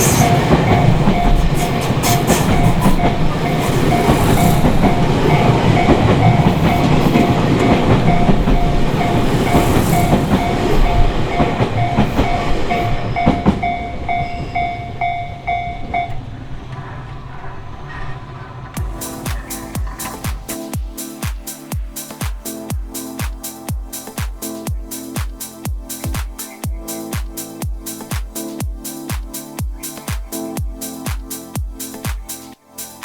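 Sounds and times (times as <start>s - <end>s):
level crossing warning bell: 0.0s - 16.8s, 18.8s - 22.0s
train wheels clattering: 0.0s - 29.4s.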